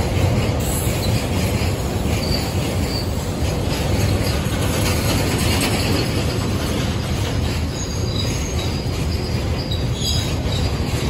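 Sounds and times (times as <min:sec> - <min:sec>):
steel wheels rumbling on rails: 0:00.0 - 0:11.0
high wheel squeals: 0:02.0 - 0:03.4, 0:07.6 - 0:11.0.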